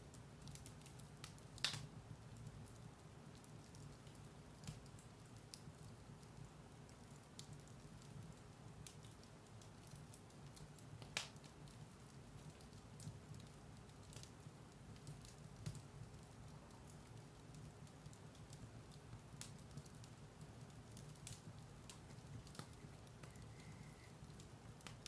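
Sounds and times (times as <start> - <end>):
firewood crackling: 0.0 - 25.0
fire pops: 0.4 - 2.8, 8.8 - 25.0.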